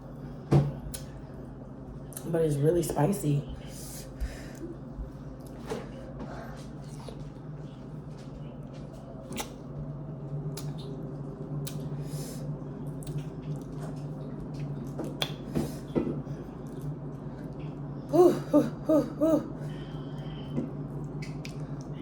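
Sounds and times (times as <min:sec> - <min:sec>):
low steady hum: 0:00.0 - 0:22.0
wet chewing mouth noises: 0:09.2 - 0:09.6, 0:11.6 - 0:12.1, 0:12.9 - 0:15.5.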